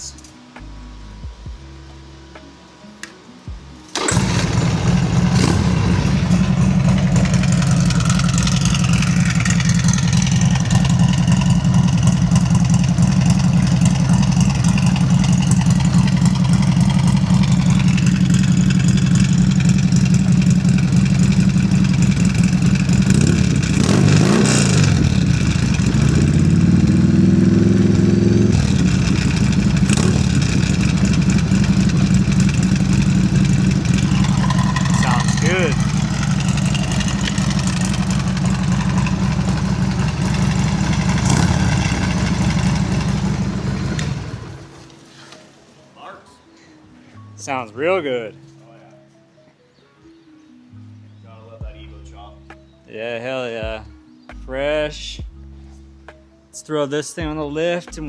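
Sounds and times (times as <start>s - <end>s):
motorcycle engine idling and revving: 3.5s - 44.9s.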